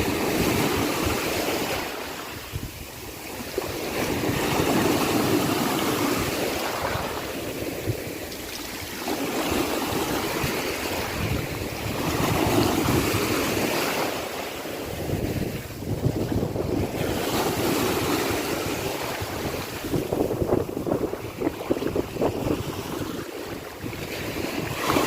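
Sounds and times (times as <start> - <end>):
sea waves breaking: 0.0 - 25.0
wind rumble on microphone: 0.0 - 25.0.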